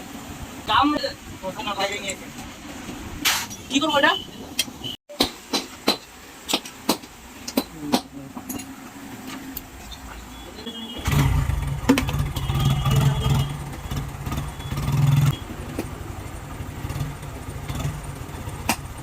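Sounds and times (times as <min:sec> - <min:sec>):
motorcycle engine starting and revving: 0:10.9 - 0:19.0.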